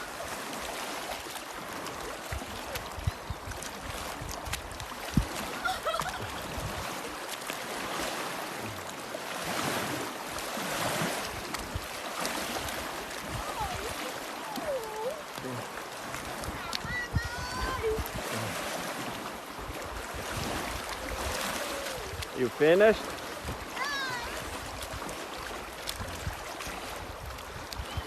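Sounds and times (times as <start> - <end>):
lake water splashing and lapping: 0.0 - 28.0.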